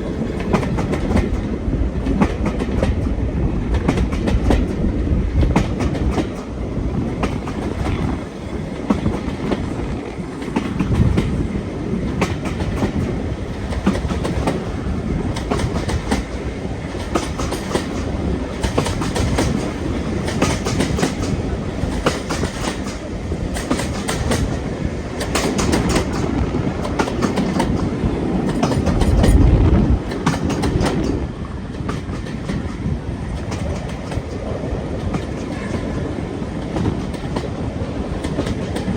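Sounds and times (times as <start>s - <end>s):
train rumbling: 0.0s - 38.9s
wheels clicking over rail joints: 0.0s - 38.9s
low rush: 26.1s - 31.7s.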